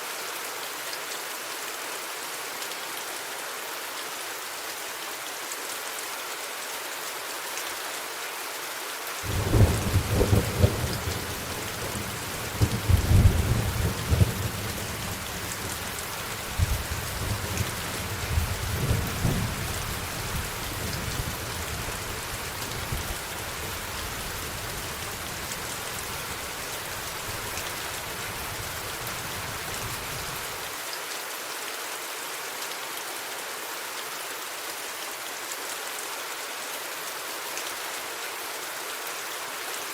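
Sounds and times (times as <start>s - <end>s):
steady rain: 0.0s - 39.9s
thunder rumbling: 9.3s - 21.4s.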